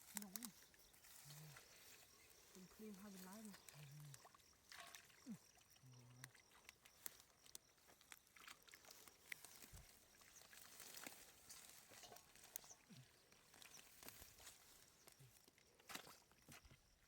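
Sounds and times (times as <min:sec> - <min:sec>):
faint clicks and rustles: 0:00.0 - 0:04.2.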